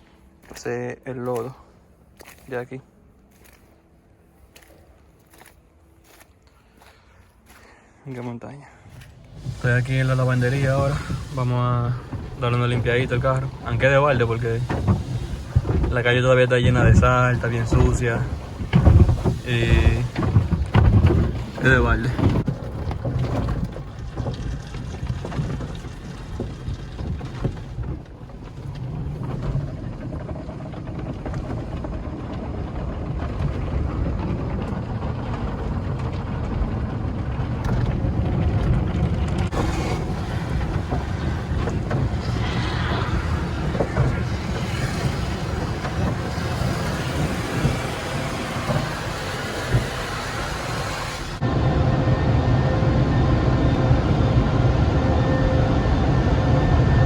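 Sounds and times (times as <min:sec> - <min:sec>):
car wash machinery rumble: 0:08.8 - 0:57.0
water spray: 0:09.4 - 0:20.7.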